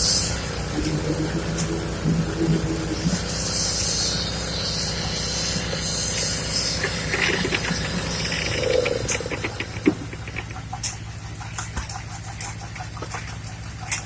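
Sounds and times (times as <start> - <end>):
heavy machinery engine running: 0.0 - 14.0
clicks and rattles: 6.8 - 11.0.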